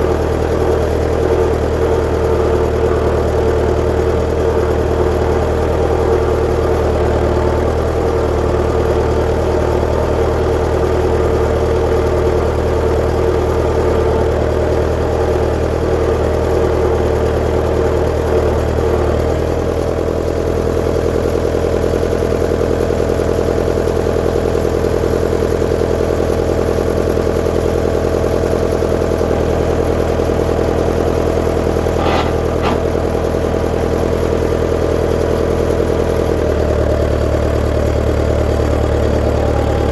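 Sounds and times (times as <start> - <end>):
tractor engine running: 0.0 - 39.9
short clanks: 31.8 - 33.4.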